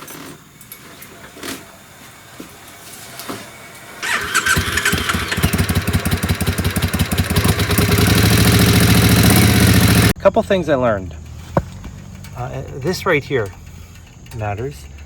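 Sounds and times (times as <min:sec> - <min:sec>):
electric starter cranking: 0:04.0 - 0:10.2
motorcycle engine running: 0:04.0 - 0:10.2, 0:11.1 - 0:15.0.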